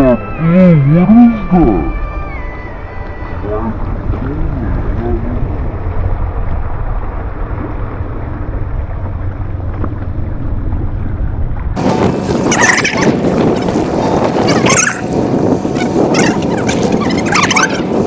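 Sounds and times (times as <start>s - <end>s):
high calls: 0.0s - 4.0s, 11.8s - 18.0s
wind rumbling on microphone: 0.0s - 18.0s.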